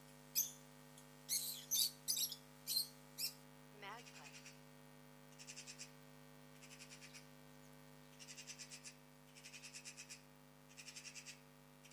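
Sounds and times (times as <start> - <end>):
electrical hum: 0.0 - 11.9.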